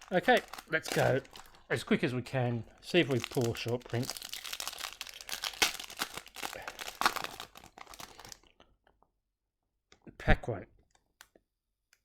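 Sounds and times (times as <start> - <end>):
plastic wrapper crinkling and tearing: 0.0 - 8.7.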